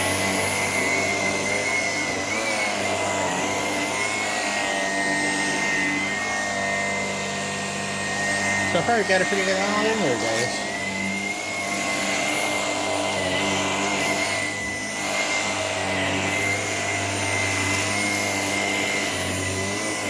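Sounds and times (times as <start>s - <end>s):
vacuum cleaner motor whine: 0.0s - 20.0s.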